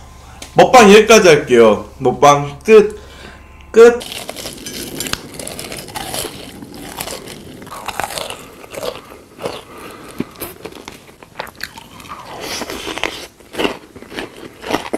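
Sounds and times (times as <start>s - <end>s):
crunchy bites and chewing: 4.0s - 14.9s.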